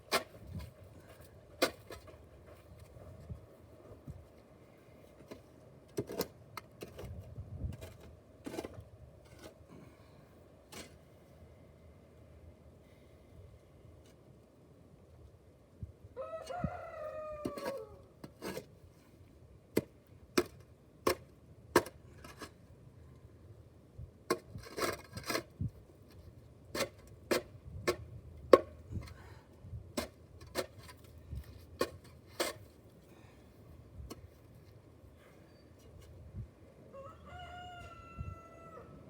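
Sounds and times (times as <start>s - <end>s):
rooster crowing: 16.2s - 18.0s, 36.9s - 39.0s.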